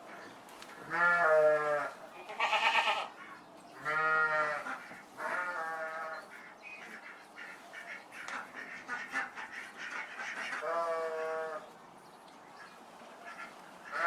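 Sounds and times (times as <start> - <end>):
farm animal bleating: 0.8 - 6.3, 10.6 - 11.6.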